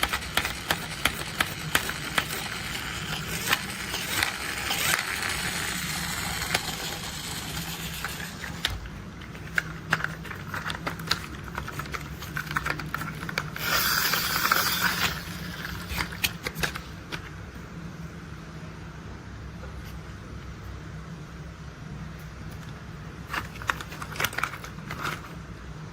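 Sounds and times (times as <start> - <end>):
plastic toys clicking and tapping: 0.0 - 16.8, 23.3 - 25.3.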